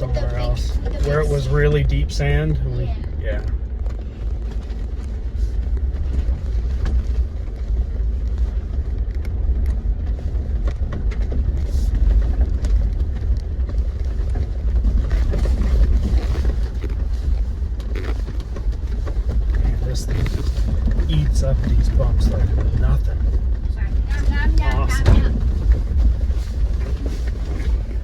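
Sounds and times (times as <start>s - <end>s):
off-road vehicle rumbling: 0.0s - 28.0s
rattles and knocks over bumps: 0.0s - 28.0s.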